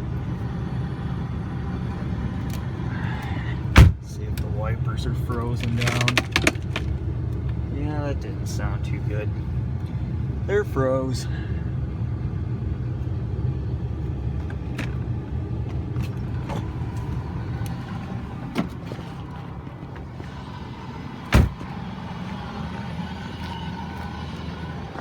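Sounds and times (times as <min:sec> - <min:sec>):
car engine idling: 0:00.0 - 0:25.0
loud thump: 0:03.8 - 0:04.0, 0:21.3 - 0:21.7.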